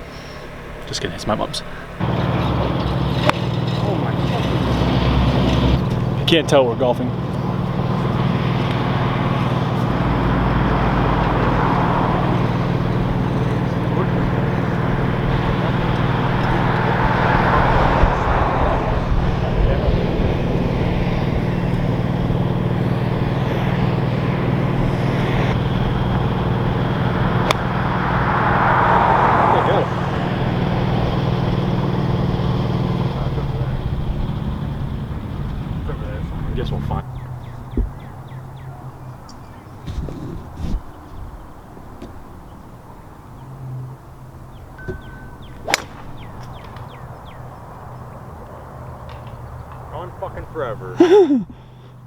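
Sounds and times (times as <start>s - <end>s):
birds chirping: 0.0s - 52.0s
road noise: 0.0s - 52.0s
vehicle engine hum: 0.0s - 52.0s
golf club striking ball: 2.5s - 6.1s, 25.6s - 28.4s, 44.8s - 47.6s.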